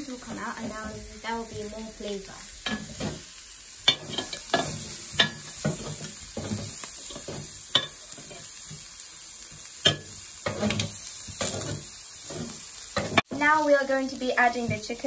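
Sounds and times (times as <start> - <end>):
food sizzling in a skillet: 0.0 - 15.0
metal clinking on pan: 3.9 - 8.4, 9.8 - 11.8.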